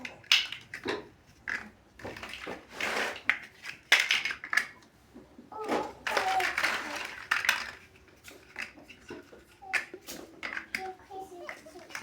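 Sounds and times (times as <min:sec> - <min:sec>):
plastic bricks snapping: 0:00.0 - 0:02.5
plastic bricks clicking and clattering: 0:00.0 - 0:04.9, 0:05.6 - 0:12.0.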